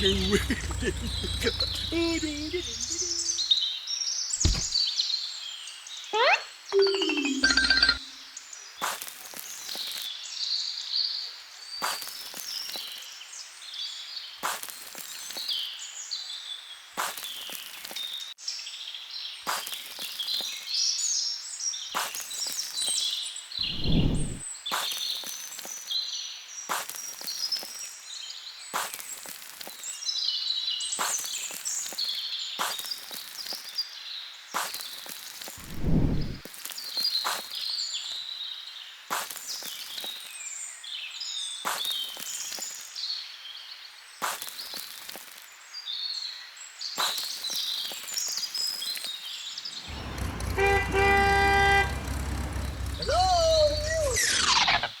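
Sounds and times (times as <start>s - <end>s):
short low thud: 4.4s - 4.8s, 23.7s - 24.4s
high bird-like chirping: 53.0s - 55.0s.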